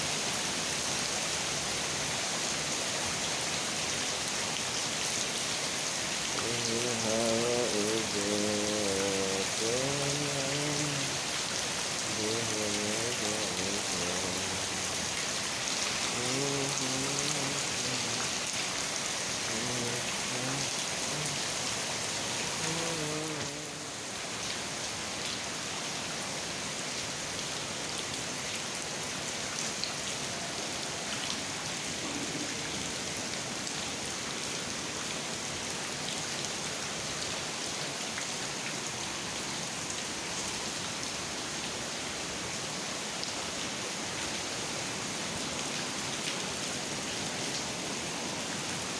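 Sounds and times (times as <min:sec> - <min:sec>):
heavy rain pattering: 0:00.2 - 0:27.0, 0:27.7 - 0:48.9
faint voice singing: 0:06.4 - 0:11.3, 0:12.0 - 0:15.0, 0:16.0 - 0:18.6, 0:19.4 - 0:21.7, 0:22.5 - 0:24.0.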